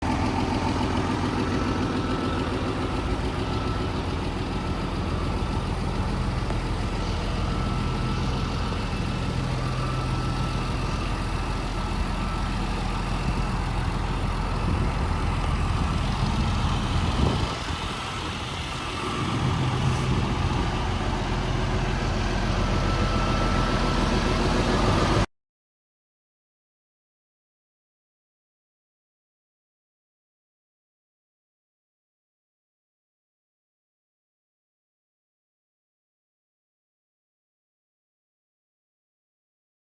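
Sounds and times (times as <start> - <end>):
diesel truck engine idling: 0.0 - 25.3.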